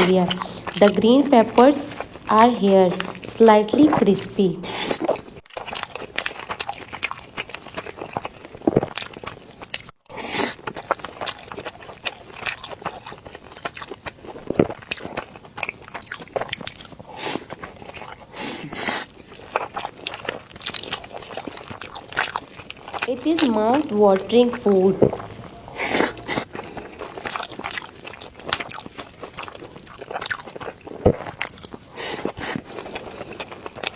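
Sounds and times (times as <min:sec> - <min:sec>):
mouth sounds: 0:00.0 - 0:05.0, 0:23.0 - 0:26.4
crunchy chewing: 0:05.6 - 0:14.0, 0:24.7 - 0:26.4, 0:27.2 - 0:33.9.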